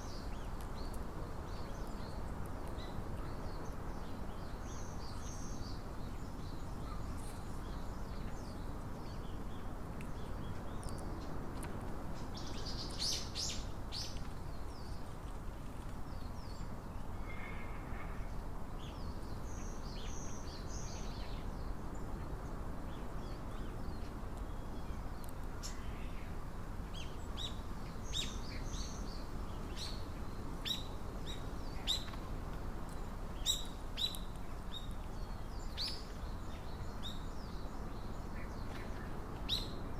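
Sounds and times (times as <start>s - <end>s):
small songbirds chirping: 0.0s - 39.9s
steady low background noise: 0.0s - 39.9s.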